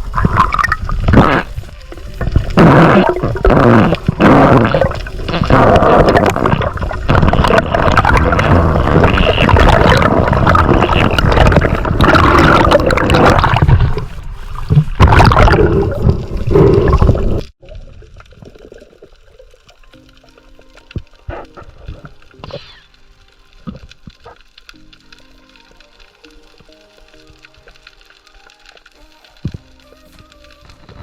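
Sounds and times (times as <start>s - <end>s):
water gurgling and bubbling: 0.0s - 19.9s.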